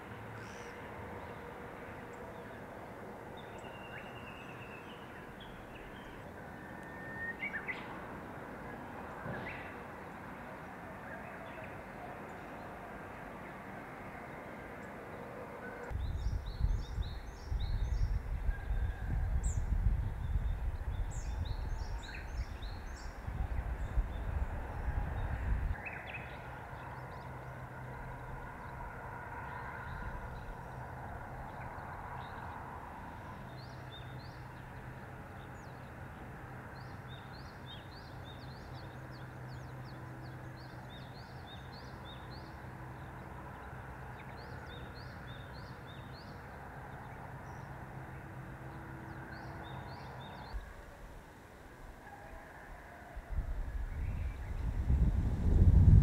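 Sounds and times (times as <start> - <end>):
wind on microphone: 15.9 - 25.9, 53.2 - 56.0.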